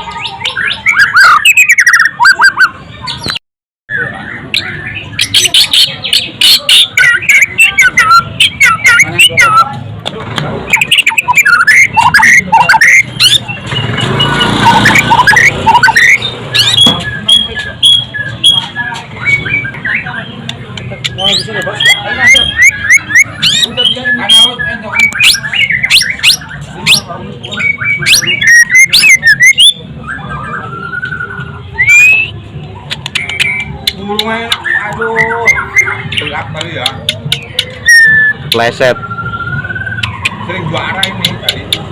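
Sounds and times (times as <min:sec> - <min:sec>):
bird singing whistled song: 0:00.0 - 0:09.9, 0:10.6 - 0:41.9.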